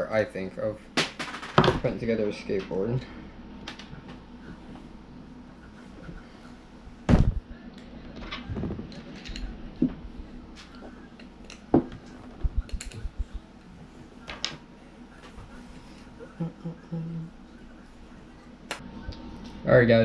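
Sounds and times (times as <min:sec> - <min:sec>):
low thumps: 0:07.0 - 0:07.5.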